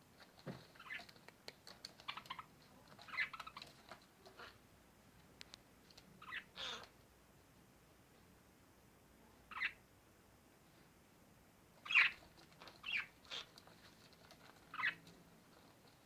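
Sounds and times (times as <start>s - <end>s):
parrots chirping: 0.8s - 1.2s, 1.9s - 3.7s, 6.2s - 6.9s, 9.5s - 9.8s, 11.8s - 15.1s
scratchy parrot call: 6.2s - 6.9s, 11.8s - 15.0s.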